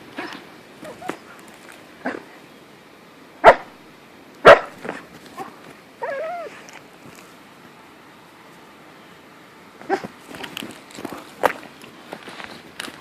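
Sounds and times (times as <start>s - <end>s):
husky barking: 3.4s - 3.7s, 4.4s - 6.5s, 9.8s - 10.1s
dog yipping: 5.4s - 6.6s, 9.8s - 10.1s
dog whining: 5.4s - 6.7s.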